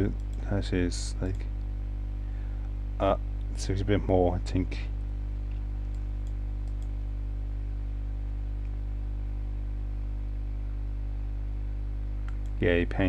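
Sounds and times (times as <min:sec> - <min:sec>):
electrical mains hum: 0:00.0 - 0:13.0
computer mouse clicks: 0:05.8 - 0:06.9, 0:12.2 - 0:12.6.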